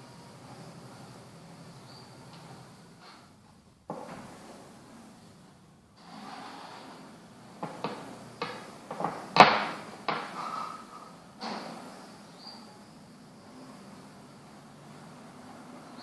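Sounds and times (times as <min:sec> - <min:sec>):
wooden game pieces knocking on board: 0:07.6 - 0:10.4.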